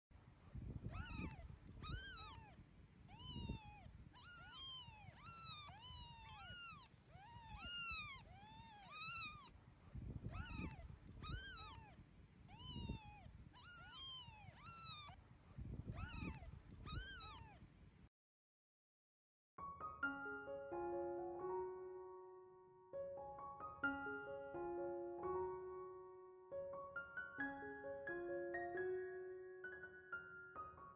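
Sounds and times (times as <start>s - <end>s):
kitten meowing: 0.8s - 9.5s, 10.2s - 15.2s, 15.9s - 17.6s.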